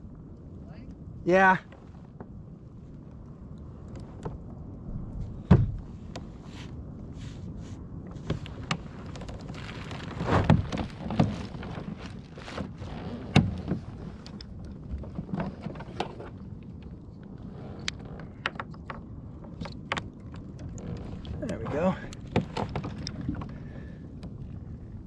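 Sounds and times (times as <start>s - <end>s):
water splashing against a kayak: 5.3s - 25.0s.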